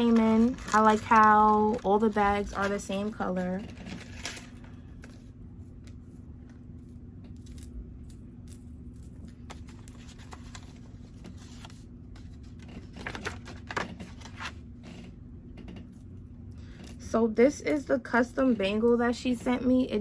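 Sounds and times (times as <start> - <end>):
packaging clicks and rustles: 0.0 - 5.2, 12.5 - 14.6
packaging crinkling: 0.0 - 5.2, 8.6 - 14.6
faint steady hum: 0.0 - 20.0.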